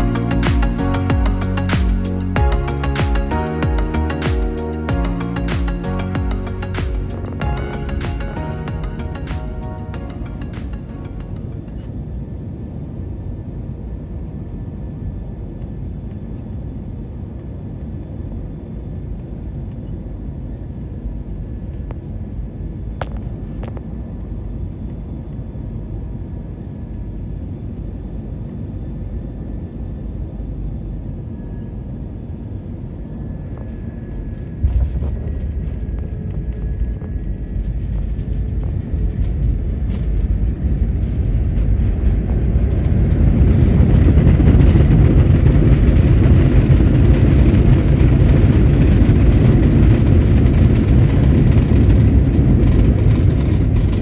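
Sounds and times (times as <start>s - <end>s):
faint whine: 13.7s - 54.0s
aircraft cabin rumble: 33.0s - 54.0s
runway rollout rumble: 34.6s - 54.0s.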